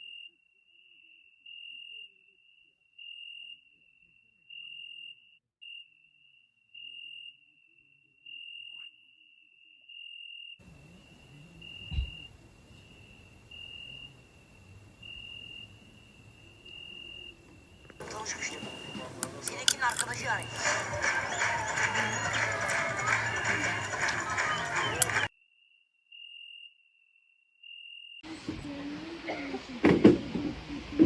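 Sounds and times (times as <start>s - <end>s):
cricket chirping: 10.6s - 25.3s.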